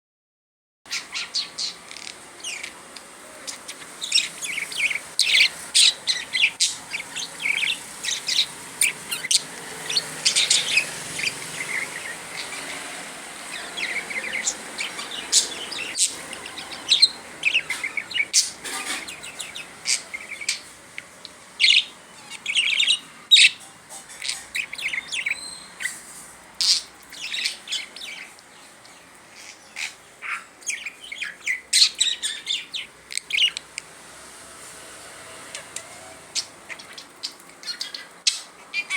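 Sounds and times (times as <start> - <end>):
budgerigar chattering: 13.5 - 20.6, 29.4 - 33.6.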